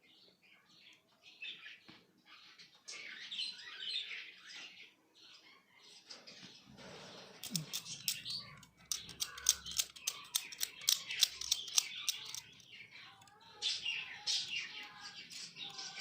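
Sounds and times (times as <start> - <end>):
birds chirping: 0.0 - 16.0
knife scraping metal tab: 7.4 - 12.5.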